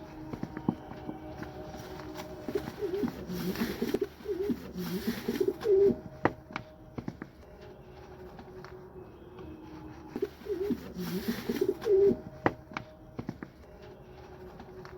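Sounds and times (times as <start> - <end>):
pigeons cooing: 1.8 - 6.6, 10.1 - 12.8.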